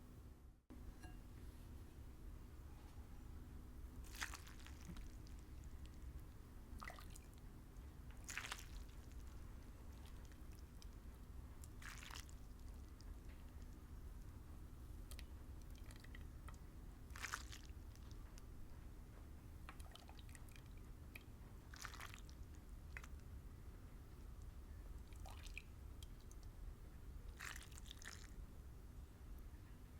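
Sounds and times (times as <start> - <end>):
quiet chewing and squishing: 4.0 - 13.8, 15.0 - 18.5, 19.7 - 23.3, 27.3 - 28.4.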